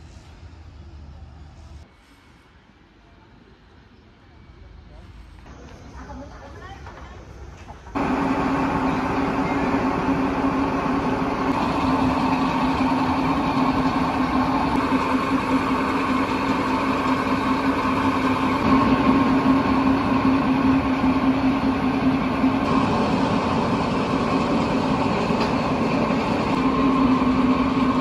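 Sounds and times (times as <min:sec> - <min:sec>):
train rolling on track: 0:04.2 - 0:28.0
low hum: 0:08.0 - 0:28.0.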